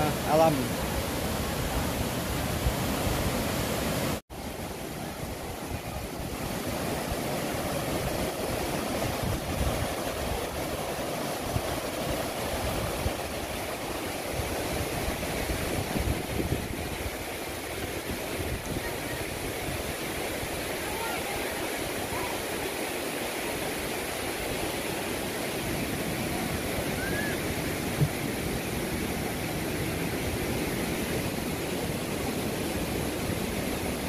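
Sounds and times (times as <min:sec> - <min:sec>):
river rushing over boulders: 0:00.0 - 0:34.0.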